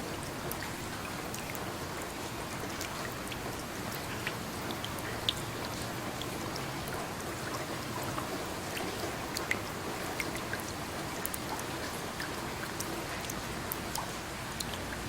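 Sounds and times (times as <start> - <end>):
rain falling: 0.0 - 15.0
raindrops ticking close by: 0.0 - 15.0.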